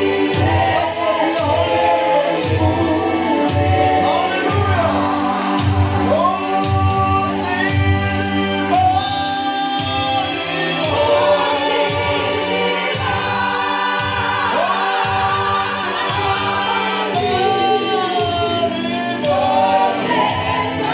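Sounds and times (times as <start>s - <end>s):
group singing gospel in harmony: 0.0s - 20.9s.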